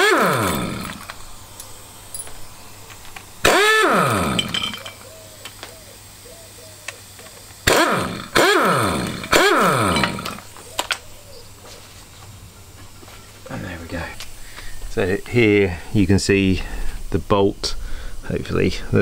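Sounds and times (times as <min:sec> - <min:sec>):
power tool motor whining: 0:00.0 - 0:11.2.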